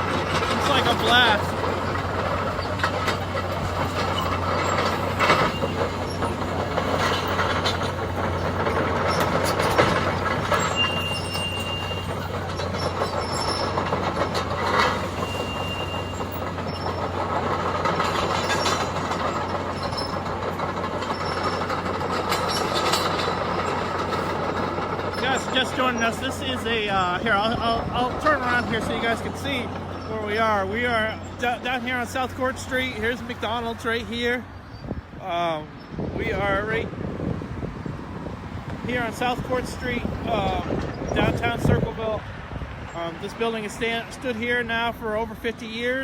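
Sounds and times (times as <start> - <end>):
excavator diesel engine running: 0.0 - 46.0
high-pitched metal squeals: 0.4 - 17.2.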